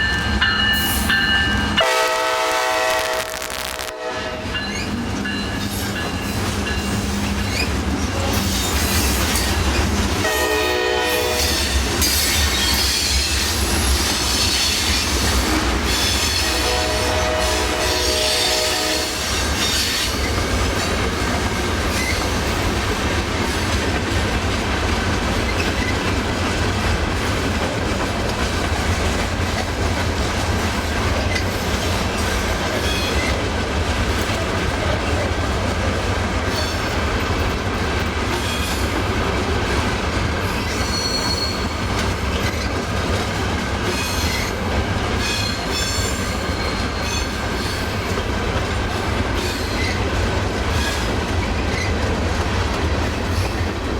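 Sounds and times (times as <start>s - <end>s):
train rumbling on rails: 0.0s - 53.9s
wheels clacking over rail joints: 19.5s - 53.9s
high wheel squeals: 40.6s - 42.5s.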